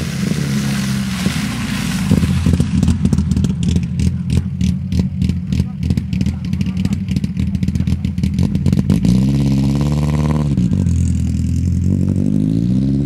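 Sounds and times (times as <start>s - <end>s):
car engine revving hard: 0.0s - 13.0s
rapid crackling clatter: 0.8s - 9.1s.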